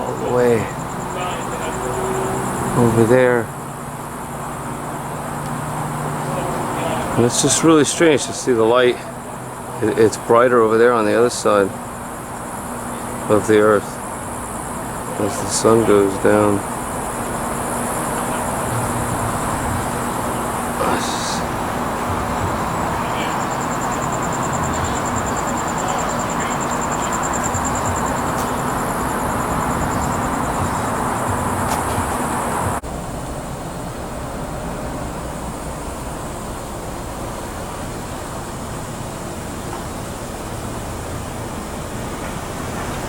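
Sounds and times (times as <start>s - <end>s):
high rapidly pulsing tone: 0.0s - 32.8s
outdoor background noise: 0.0s - 43.0s.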